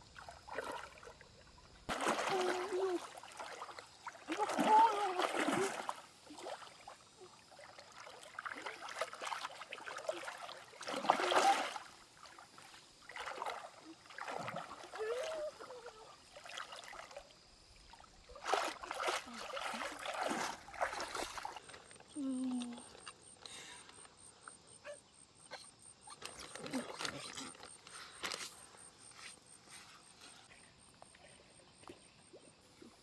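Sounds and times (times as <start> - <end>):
water splashing in a stream: 0.0 - 22.2.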